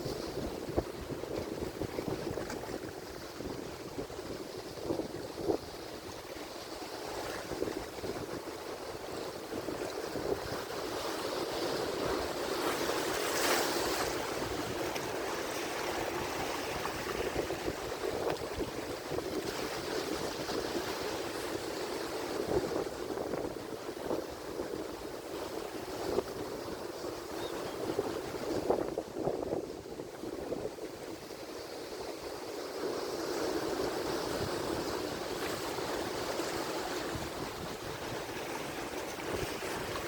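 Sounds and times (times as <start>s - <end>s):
ocean waves breaking: 5.8s - 23.0s, 31.0s - 40.0s.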